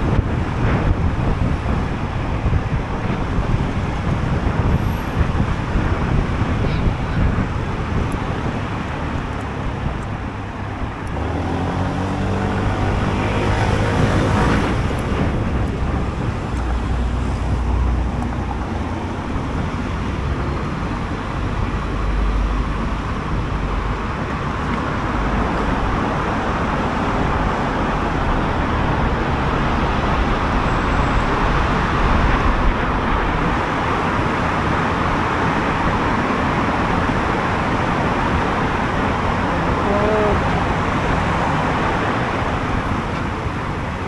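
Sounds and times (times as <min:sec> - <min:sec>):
wind and road noise: 0:00.0 - 0:44.0
scooter engine running: 0:05.8 - 0:16.9, 0:34.6 - 0:44.0.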